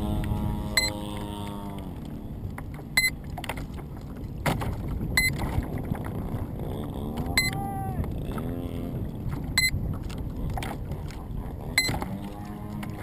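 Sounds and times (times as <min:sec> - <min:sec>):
model aircraft electric motor humming: 0:00.0 - 0:02.5.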